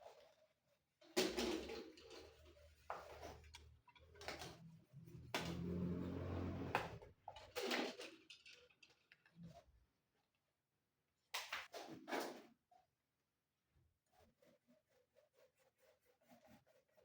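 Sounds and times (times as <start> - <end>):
knocks and scraping of parts: 3.2 - 9.2.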